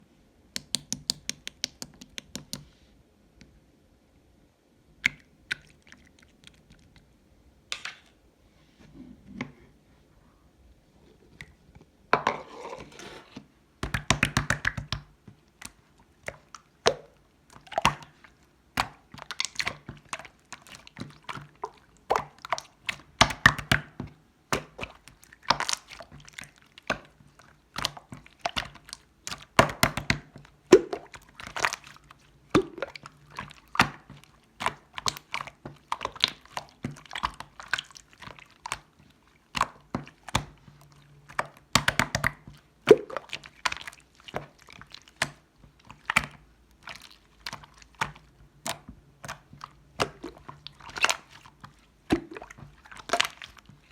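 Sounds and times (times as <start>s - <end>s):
slime squishing with pops: 0.5s - 2.7s, 5.0s - 8.2s, 13.8s - 53.9s.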